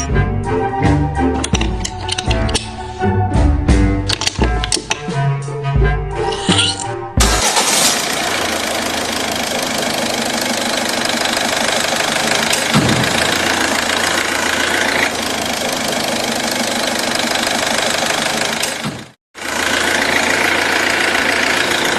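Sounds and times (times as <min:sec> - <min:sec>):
mini engine running: 0:07.2 - 0:21.9.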